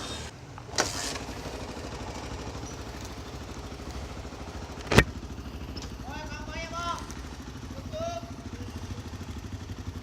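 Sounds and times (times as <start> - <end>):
motorcycle engine idling: 0.0 - 10.0
sharp clunk: 4.8 - 5.1.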